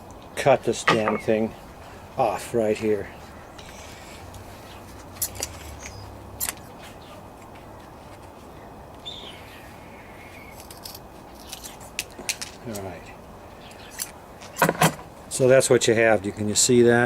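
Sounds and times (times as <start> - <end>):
outdoor background: 0.0 - 17.0
bird chirp: 0.8 - 1.6, 5.6 - 7.2, 8.5 - 10.6, 13.5 - 14.0.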